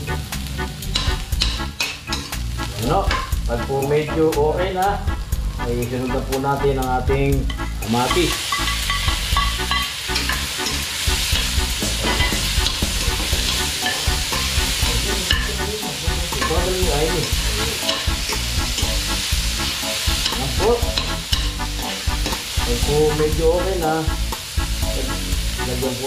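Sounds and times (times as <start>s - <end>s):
garlic and onion sizzling in oil: 0.0s - 26.0s
spatula scraping a wok: 7.4s - 22.8s.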